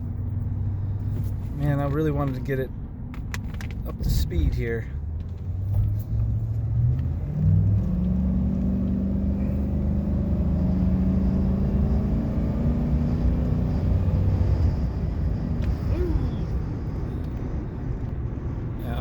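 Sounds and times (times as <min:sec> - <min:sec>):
truck engine accelerating: 0:05.1 - 0:19.0.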